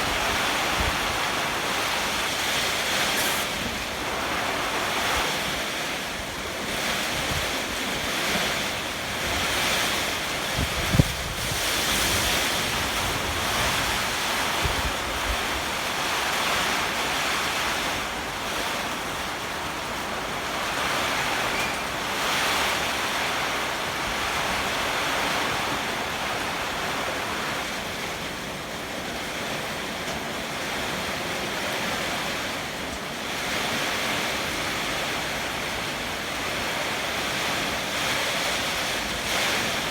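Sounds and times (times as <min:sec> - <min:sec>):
wind buffeting microphone: 0:00.0 - 0:16.6
strong gusting wind: 0:00.0 - 0:27.6
heavy rain: 0:00.0 - 0:39.9.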